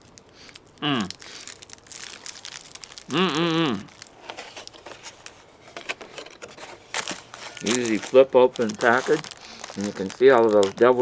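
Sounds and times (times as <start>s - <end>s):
plastic packaging crinkling: 0.0s - 11.0s
person humming: 0.8s - 1.2s, 3.1s - 4.0s.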